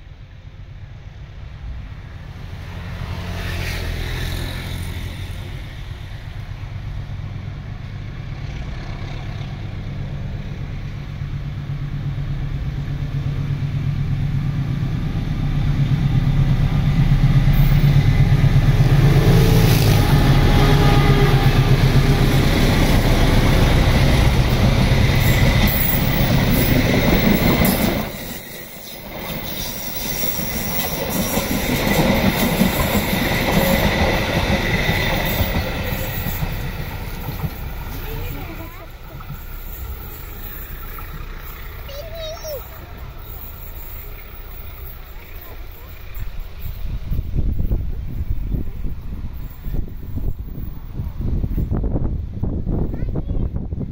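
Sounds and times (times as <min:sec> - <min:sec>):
locomotive engine rumble: 0:04.9 - 0:53.9
wheels clicking on rail joints: 0:16.8 - 0:51.8.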